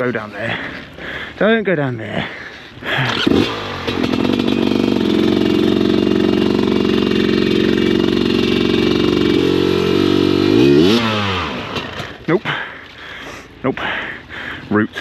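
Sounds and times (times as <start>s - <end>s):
dirt bike engine revving: 2.8s - 12.8s.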